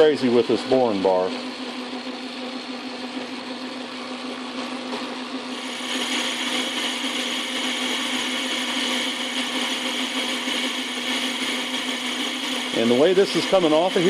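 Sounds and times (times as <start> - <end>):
metal lathe humming: 0.0 - 14.0.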